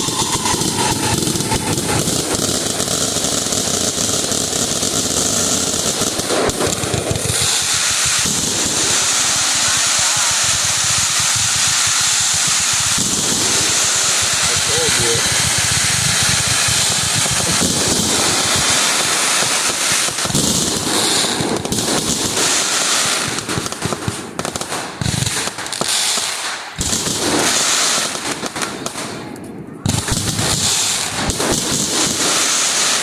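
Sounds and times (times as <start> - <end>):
fireworks crackling and banging: 0.0 - 33.0
steady hiss: 7.3 - 20.3.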